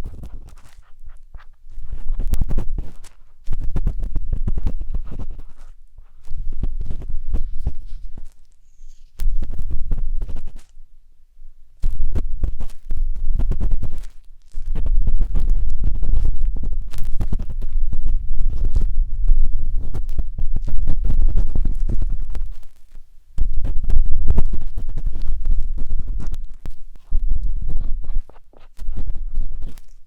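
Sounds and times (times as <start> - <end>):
matchstick rubbing on microphone: 0.0 - 10.8, 11.8 - 30.0.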